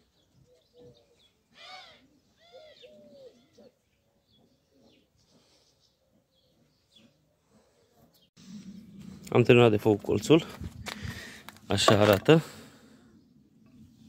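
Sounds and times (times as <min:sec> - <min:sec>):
faint bird calls: 0:00.4 - 0:08.0.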